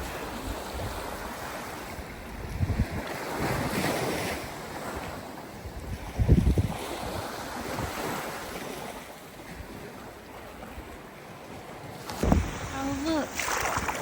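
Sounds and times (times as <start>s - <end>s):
wind on microphone: 0.0s - 11.1s, 11.8s - 14.0s
small waves washing on beach: 0.0s - 14.0s
loud low thump: 12.1s - 12.7s.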